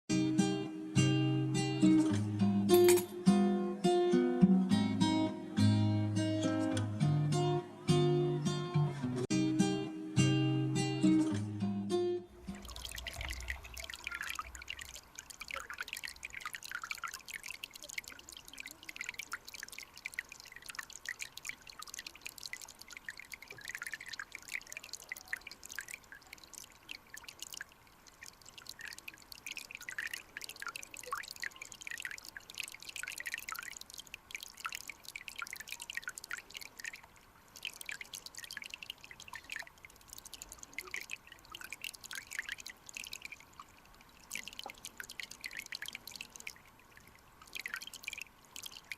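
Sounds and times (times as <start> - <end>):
stream trickling: 0.1 - 8.6, 9.2 - 48.9
water drips and bubbles: 12.2 - 48.9.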